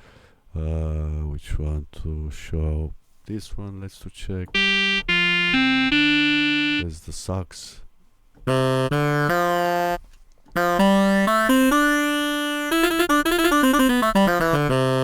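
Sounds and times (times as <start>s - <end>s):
sampled saxophone on keyboard: 4.5s - 7.0s, 8.5s - 15.0s.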